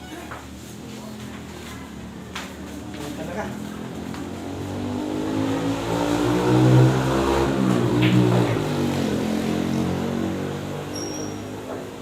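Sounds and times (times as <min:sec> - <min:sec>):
vehicle engine revving: 0:03.7 - 0:11.0.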